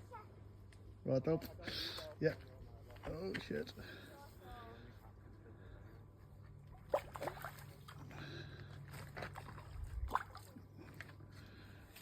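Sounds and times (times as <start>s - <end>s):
fish splashing at water surface: 6.9s - 8.0s, 9.3s - 10.6s.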